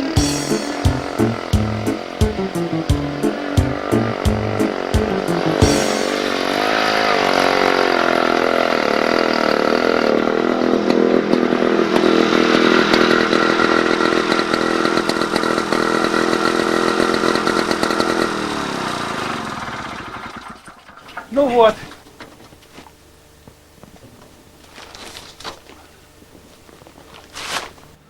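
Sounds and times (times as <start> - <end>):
small petrol engine running: 0.0 - 21.4.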